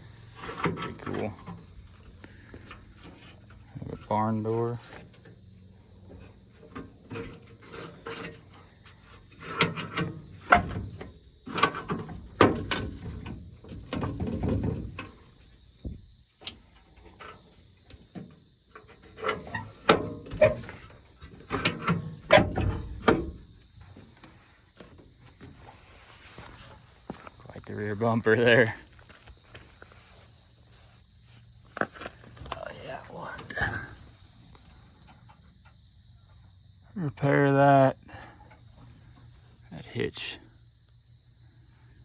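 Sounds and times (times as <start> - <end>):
metal door clunks and rattles: 0.0 - 24.1.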